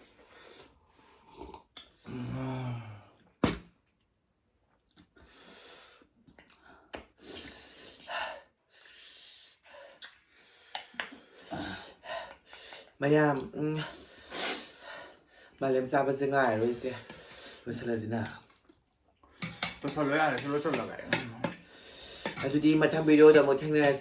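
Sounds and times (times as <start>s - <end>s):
person breathing softly: 21.5s - 22.4s.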